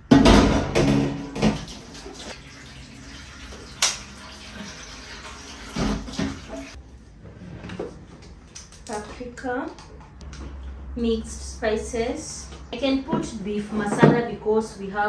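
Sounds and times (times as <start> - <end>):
water running from tap: 0.8 - 6.8.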